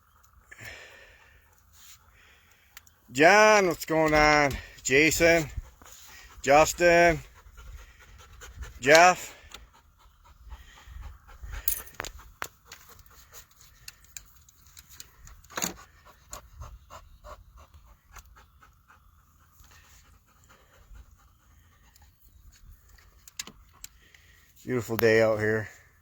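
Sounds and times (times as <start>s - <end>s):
dog panting: 4.0s - 14.2s, 14.9s - 24.4s
small clicks and knocks: 22.8s - 24.2s.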